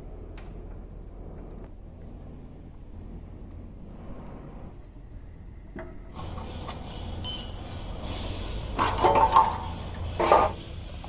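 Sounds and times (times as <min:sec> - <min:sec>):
low steady hum: 0:00.0 - 0:09.8
metal tools clinking and knocking: 0:06.9 - 0:07.9.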